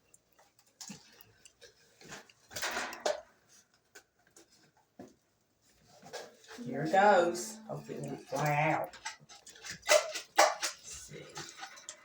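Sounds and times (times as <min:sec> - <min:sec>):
clicks taps and rattles of handling: 0:00.2 - 0:05.2
scrape or rustle: 0:05.6 - 0:07.3.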